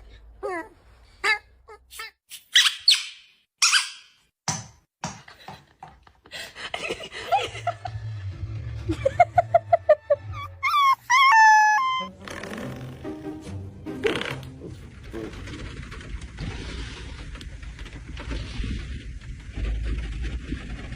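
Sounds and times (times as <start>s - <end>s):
dog whining and yelping: 10.4s - 12.1s.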